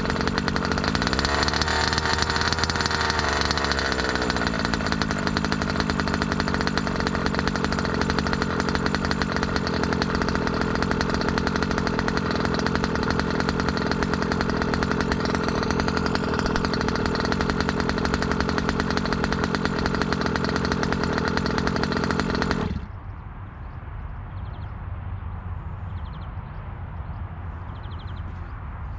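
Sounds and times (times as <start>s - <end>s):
two-stroke engine running: 0.0s - 23.0s.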